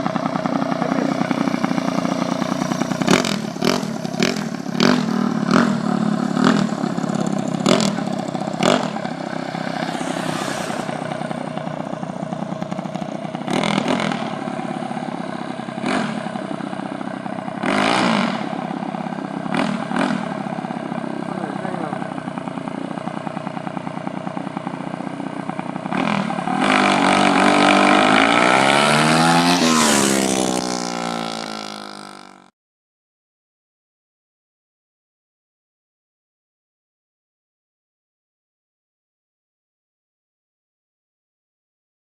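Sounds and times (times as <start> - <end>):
minibike engine running: 0.0 - 32.5.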